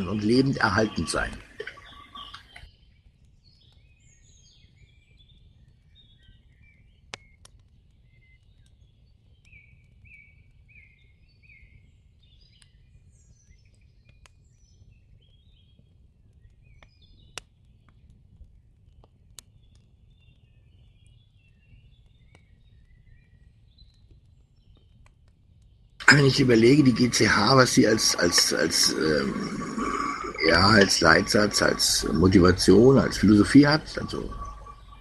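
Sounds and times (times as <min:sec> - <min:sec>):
birds chirping: 0:00.0 - 0:07.4, 0:25.8 - 0:35.0.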